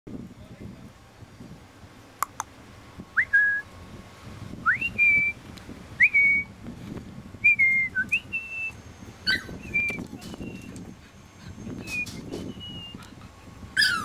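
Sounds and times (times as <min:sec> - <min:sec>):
person whistling short notes: 0:11.8 - 0:13.0.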